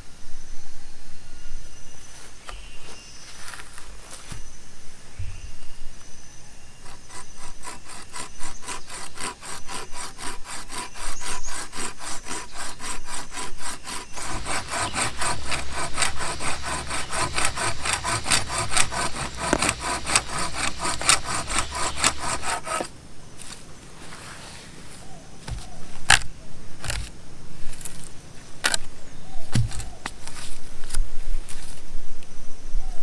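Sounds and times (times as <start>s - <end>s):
hand saw cutting wood: 6.8s - 22.9s.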